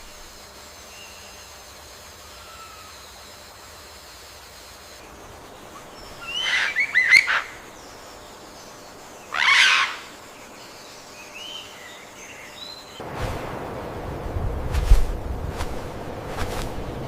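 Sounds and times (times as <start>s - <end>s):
soft forest hiss: 0.0s - 17.0s
bird chirping calls: 5.1s - 13.0s.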